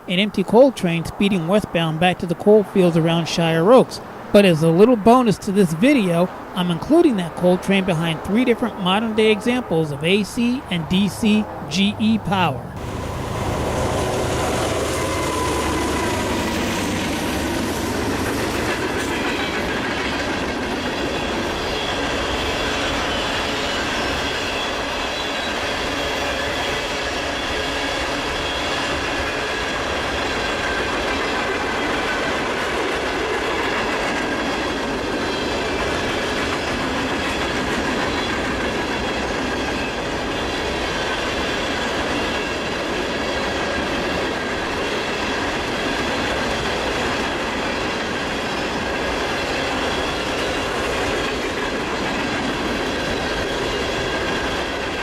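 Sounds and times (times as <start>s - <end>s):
train wheels on rails: 12.7s - 55.0s.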